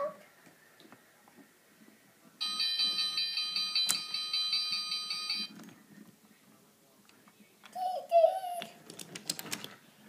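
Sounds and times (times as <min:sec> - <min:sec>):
toy train electronic bell ringing: 0:02.4 - 0:05.5.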